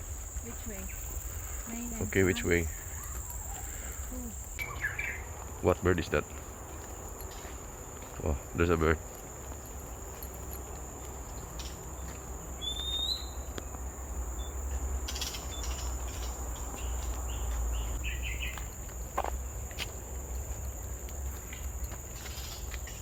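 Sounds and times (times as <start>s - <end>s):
high-pitched insect drone: 0.0s - 4.8s
bird whistling: 12.6s - 13.5s.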